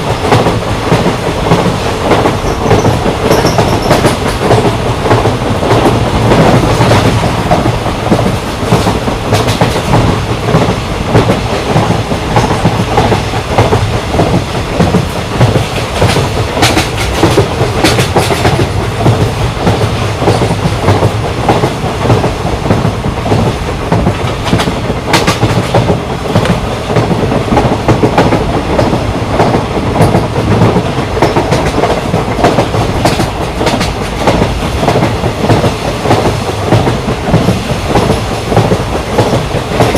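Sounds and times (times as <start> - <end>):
train rumbling: 0.0 - 39.9.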